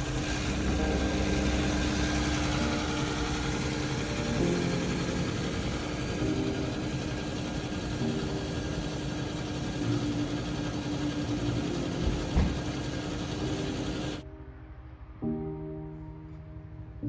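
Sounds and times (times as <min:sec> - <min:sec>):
watercraft engine running: 0:00.0 - 0:14.2
low thump: 0:12.3 - 0:12.6.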